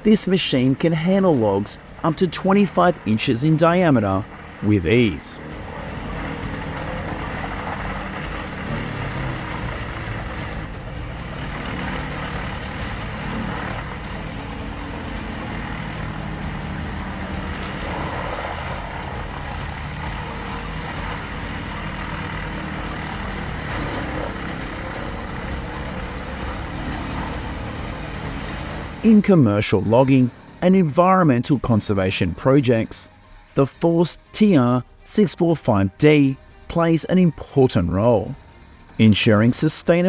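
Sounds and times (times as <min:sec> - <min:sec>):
wood chipper engine running: 0:00.6 - 0:29.2.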